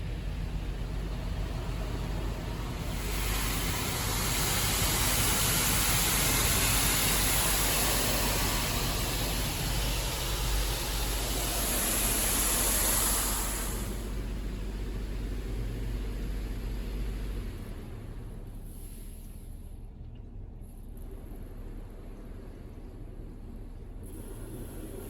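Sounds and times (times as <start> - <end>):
car wash spray hissing: 0.0 - 17.6
low rumble: 0.0 - 25.0.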